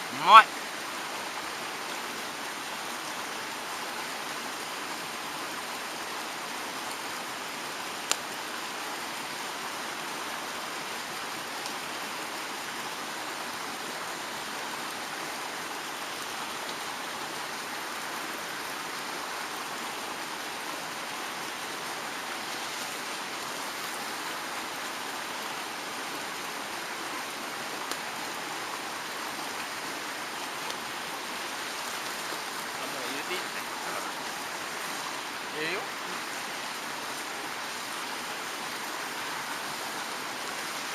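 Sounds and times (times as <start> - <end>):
stream rushing: 0.0 - 40.9.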